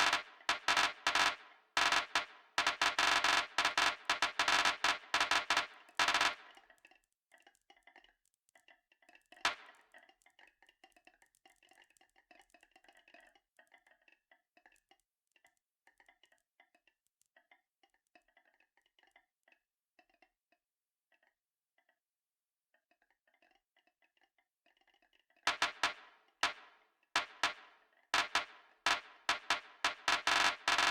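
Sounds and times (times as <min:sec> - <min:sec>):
marbles rolling on a track: 0:00.0 - 0:06.6, 0:25.5 - 0:26.6, 0:28.2 - 0:30.9.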